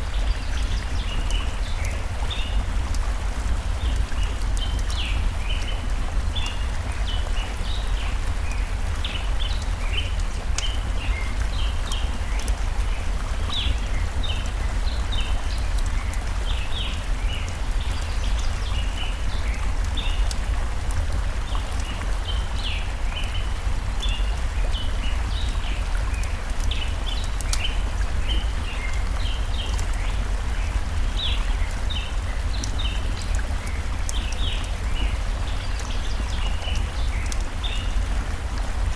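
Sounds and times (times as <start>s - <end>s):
stream flowing: 0.0s - 38.9s
wood fire crackling: 28.8s - 38.7s.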